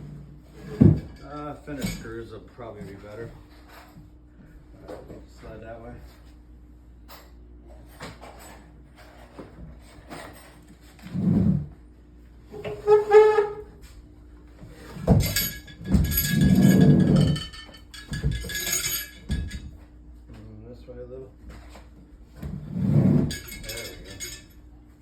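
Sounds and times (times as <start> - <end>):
knocks and rumbling: 15.0 - 19.8
metallic clinks: 15.2 - 19.7, 23.3 - 24.6.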